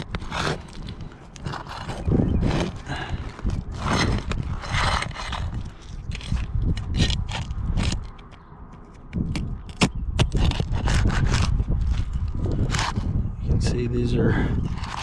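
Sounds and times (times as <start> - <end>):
roof shingles scraping: 0.0 - 8.2.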